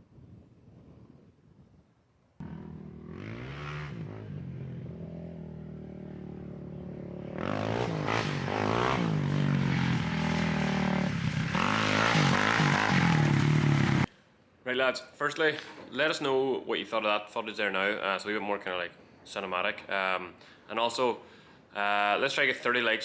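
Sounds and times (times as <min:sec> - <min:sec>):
quad bike engine revving: 0:02.4 - 0:14.1.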